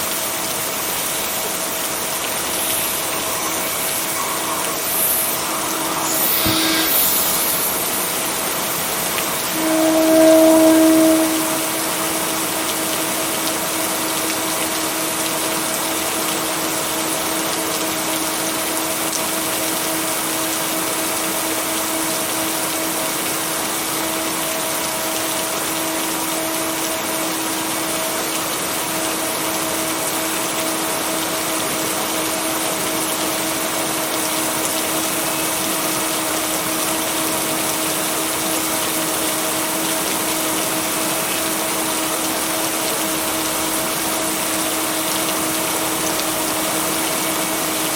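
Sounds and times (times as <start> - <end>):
heavy rain: 0.0 - 47.9
low two-tone hum: 9.2 - 12.8.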